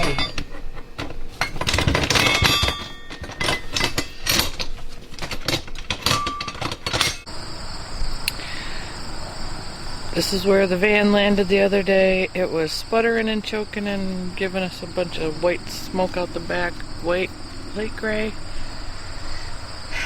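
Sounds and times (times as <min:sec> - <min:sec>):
crickets chirping: 0:00.0 - 0:05.6, 0:06.2 - 0:20.0
metal hardware clinking and rattling: 0:00.0 - 0:07.3.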